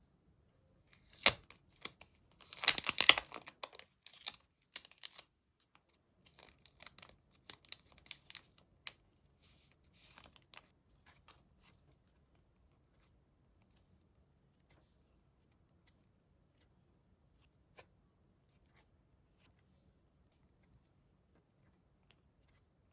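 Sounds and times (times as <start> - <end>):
cards rustling: 1.0 - 5.2
wrapper crinkling: 1.0 - 5.3, 6.3 - 9.0
wrapper tearing: 1.0 - 5.3, 6.4 - 8.6.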